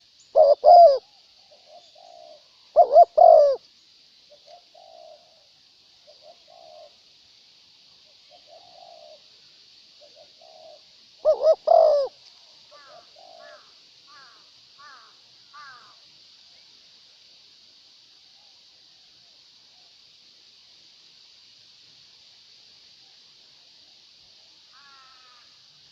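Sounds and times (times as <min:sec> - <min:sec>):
steady high hiss: 0:00.0 - 0:25.9
doves cooing: 0:00.4 - 0:03.6, 0:04.4 - 0:05.4, 0:06.1 - 0:07.0, 0:08.3 - 0:09.3, 0:10.0 - 0:13.7.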